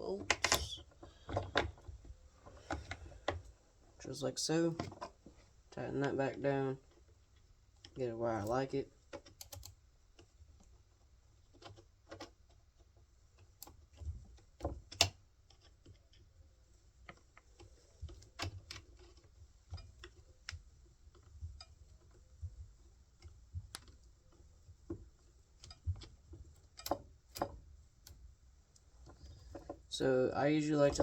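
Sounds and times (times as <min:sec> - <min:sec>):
tools clicking and knocking: 0:00.2 - 0:03.4, 0:23.2 - 0:28.2.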